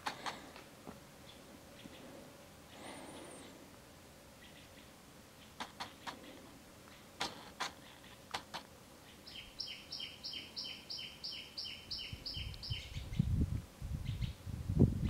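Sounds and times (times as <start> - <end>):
sharp clicks: 0.0 - 0.6, 5.6 - 6.3, 7.2 - 8.7
bird calling repeated notes: 4.4 - 13.2.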